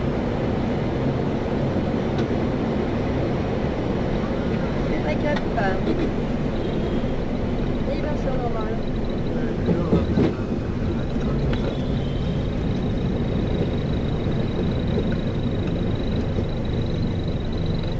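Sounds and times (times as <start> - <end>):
aircraft decelerating rumble: 0.0 - 17.9
thin steady high tone: 6.5 - 10.0, 10.7 - 17.9.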